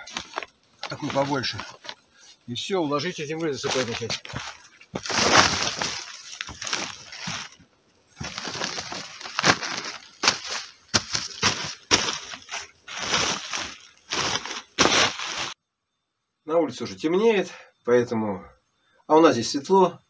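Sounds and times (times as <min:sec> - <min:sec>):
earth being tipped onto roof: 0:03.6 - 0:07.6.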